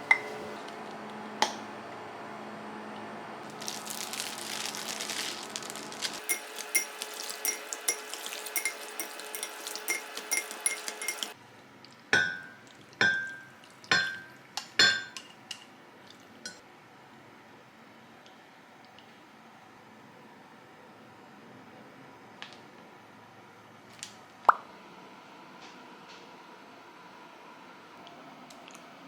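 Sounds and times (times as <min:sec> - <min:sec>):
dishes and glassware clinking: 0:06.2 - 0:11.4, 0:12.2 - 0:15.4.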